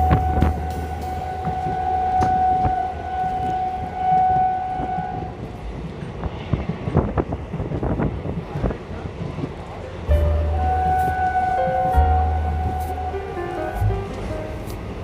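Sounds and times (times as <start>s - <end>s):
train horn: 0.0s - 5.5s, 10.1s - 14.8s
train rumble: 0.0s - 15.0s.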